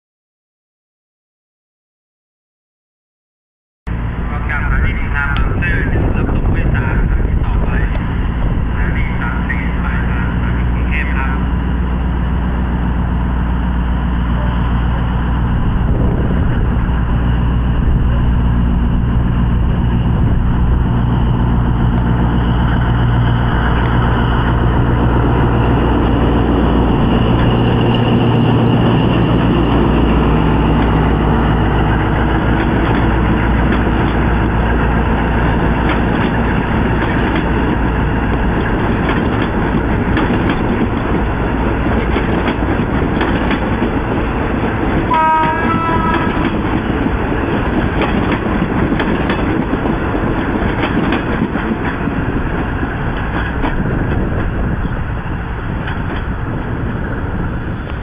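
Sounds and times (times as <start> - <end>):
diesel locomotive engine drone: 3.9 - 58.0
train wheels clicking on rails: 22.8 - 56.7
short train horn toot: 45.1 - 46.4.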